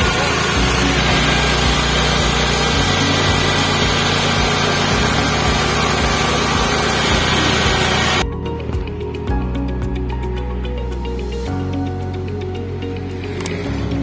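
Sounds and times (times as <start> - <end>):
milling machine running: 0.0 - 8.2.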